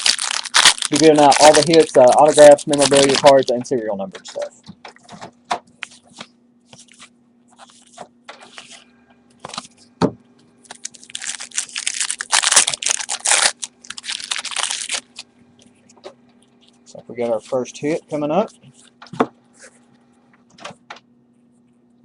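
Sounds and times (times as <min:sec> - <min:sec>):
foil wrappers tearing and crinkling: 0:00.0 - 0:03.6, 0:10.7 - 0:15.3.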